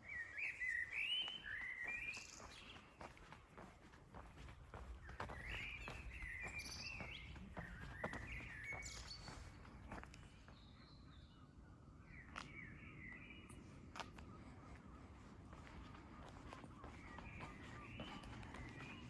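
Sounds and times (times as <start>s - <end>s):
small birds chirping: 0.0s - 19.0s
walking footsteps: 1.2s - 10.6s, 13.9s - 19.0s.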